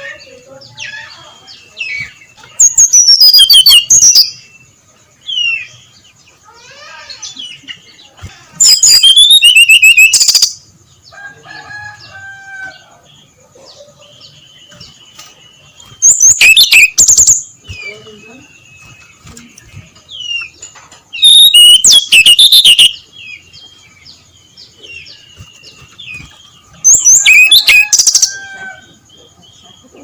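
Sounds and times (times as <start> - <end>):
soft bird chirps: 0.0 - 30.0
bird song high notes: 21.2 - 23.1.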